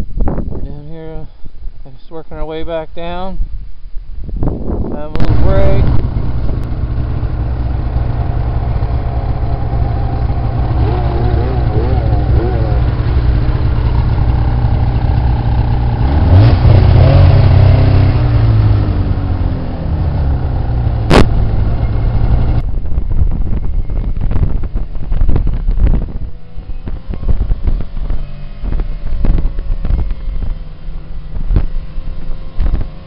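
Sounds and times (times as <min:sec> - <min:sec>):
wind buffeting microphone: 0:00.0 - 0:01.7, 0:03.5 - 0:33.0
snowmobile engines revving: 0:06.8 - 0:22.4.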